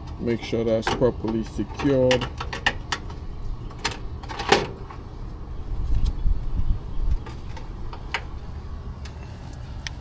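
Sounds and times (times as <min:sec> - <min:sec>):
low rumbling handling noise: 0:00.0 - 0:10.0.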